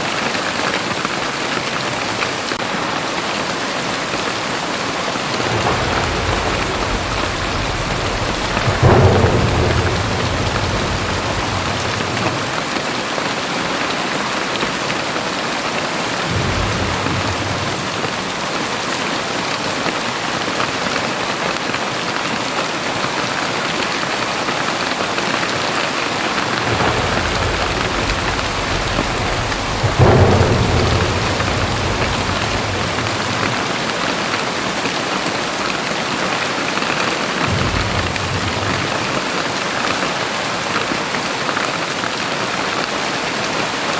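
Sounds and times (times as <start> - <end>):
heavy rain pouring: 0.0 - 43.9
thunder rumbling: 4.0 - 13.4, 15.6 - 19.6, 25.2 - 35.2, 37.3 - 40.8.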